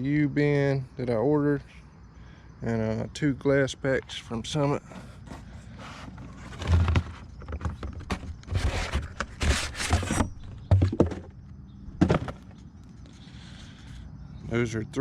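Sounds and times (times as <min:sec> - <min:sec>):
scraping and rustling: 0:04.8 - 0:11.4.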